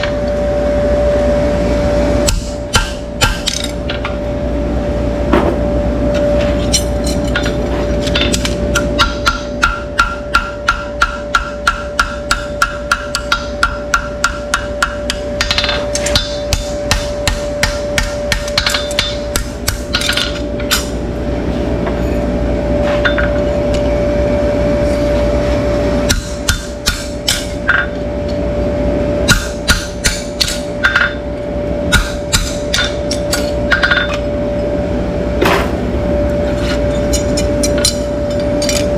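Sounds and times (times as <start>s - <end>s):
steady hum: 0.0s - 38.9s
hammer striking: 2.2s - 4.1s, 6.7s - 21.0s, 26.1s - 28.0s, 29.3s - 31.2s, 31.9s - 34.2s.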